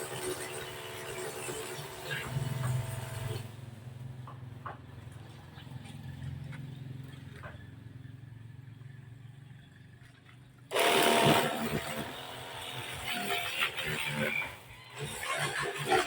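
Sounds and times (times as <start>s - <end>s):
washing machine motor humming: 10.7s - 12.6s.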